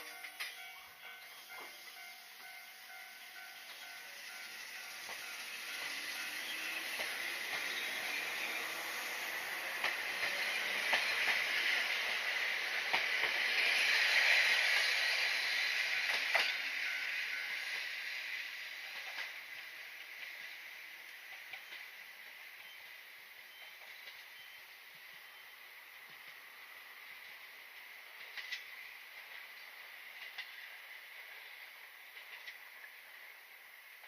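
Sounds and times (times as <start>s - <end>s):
train rushing past: 0.0s - 22.0s.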